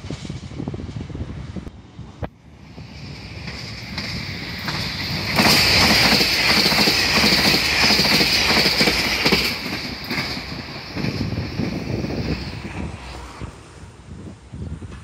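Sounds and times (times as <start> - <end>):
train wheels clattering over rail joints: 2.8 - 13.0.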